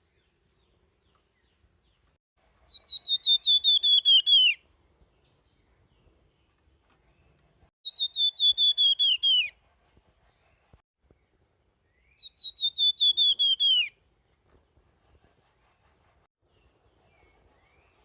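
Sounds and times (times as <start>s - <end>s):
songbird whistling phrases: 2.7s - 4.6s, 7.8s - 9.5s, 12.1s - 14.0s.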